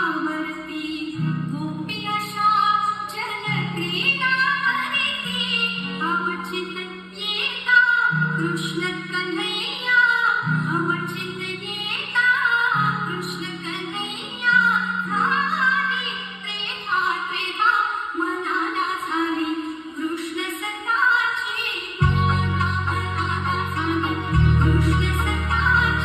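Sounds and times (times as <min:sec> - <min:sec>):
woman singing: 0:00.0 - 0:26.0
long held bass notes: 0:22.0 - 0:26.0.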